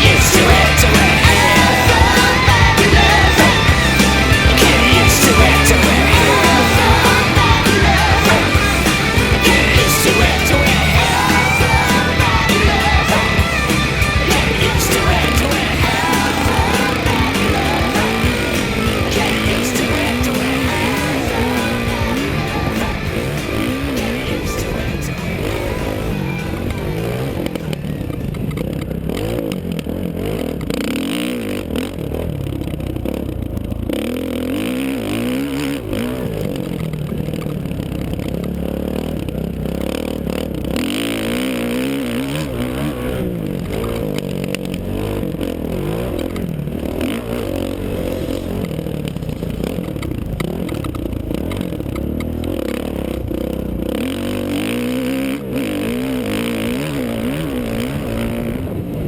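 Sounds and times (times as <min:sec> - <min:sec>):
steady rushing noise: 0:00.0 - 0:28.9
dirt bike engine revving: 0:00.0 - 0:59.0.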